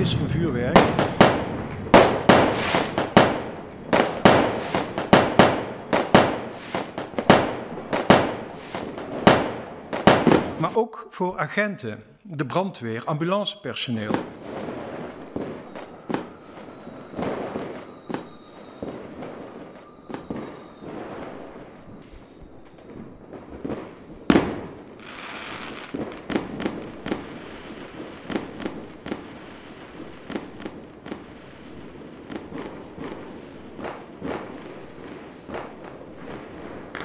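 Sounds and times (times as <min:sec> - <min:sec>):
loud firework bang: 0:00.0 - 0:10.6
firecracker bangs: 0:00.0 - 0:10.8, 0:14.0 - 0:37.0
crackling hiss: 0:00.0 - 0:37.0.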